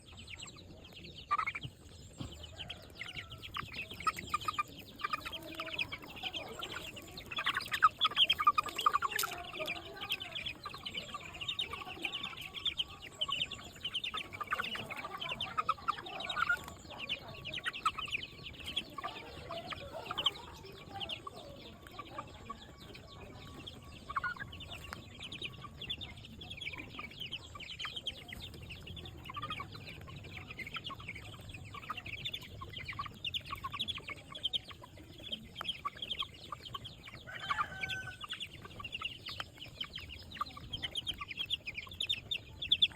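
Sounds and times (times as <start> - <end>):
chickens clucking and calling: 0.0 - 42.9.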